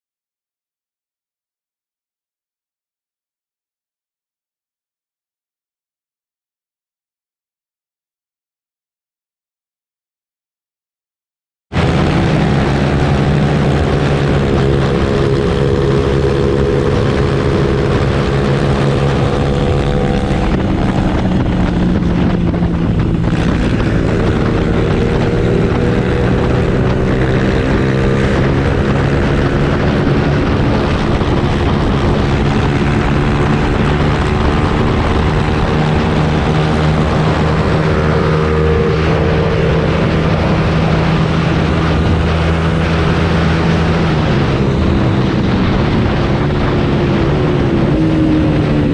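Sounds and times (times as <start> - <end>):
motorcycle engine running: 11.8 - 48.9.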